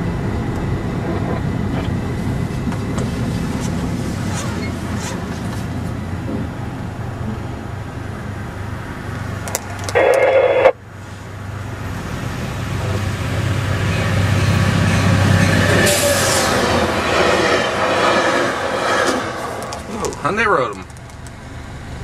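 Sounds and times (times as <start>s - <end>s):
moving vehicle rumble: 0.0s - 22.0s.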